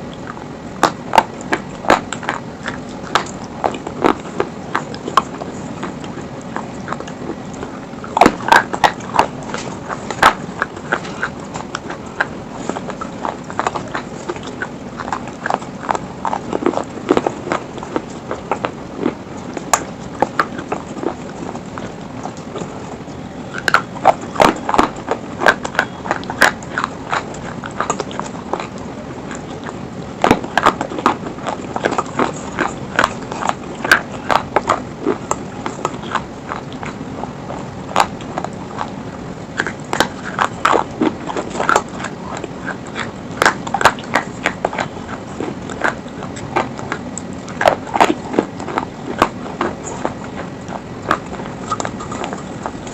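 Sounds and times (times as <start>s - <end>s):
crunchy chewing of stone: 0.0s - 52.9s.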